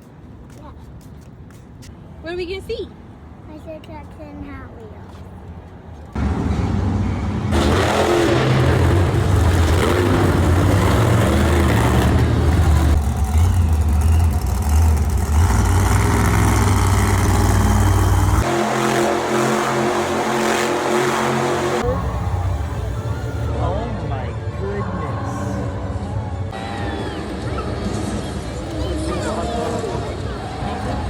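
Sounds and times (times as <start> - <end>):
monster truck engines revving: 6.2 - 23.6, 25.4 - 31.0.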